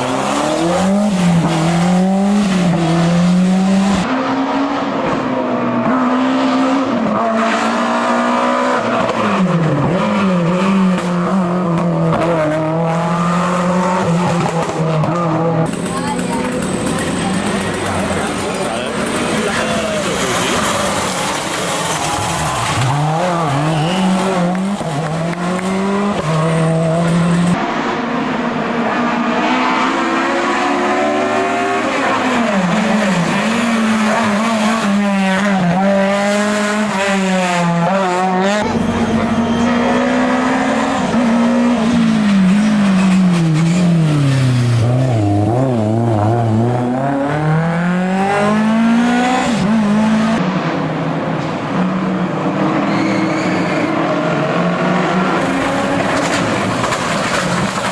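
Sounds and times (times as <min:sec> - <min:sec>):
rally car engines revving: 0:00.0 - 0:57.9.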